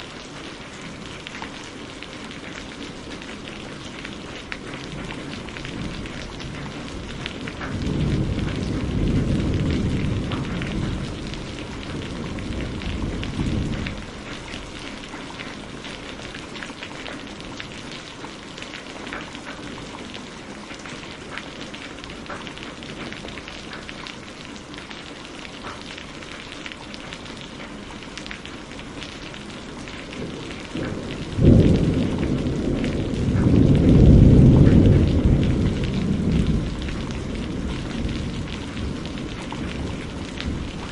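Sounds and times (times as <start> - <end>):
rain pattering: 0.0 - 40.9
thunder rolling: 4.8 - 14.6, 29.7 - 40.9.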